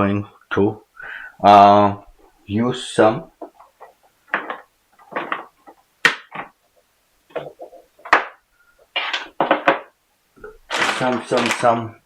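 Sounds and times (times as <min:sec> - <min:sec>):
handling small parts and tools: 0:03.4 - 0:06.5, 0:07.3 - 0:11.8.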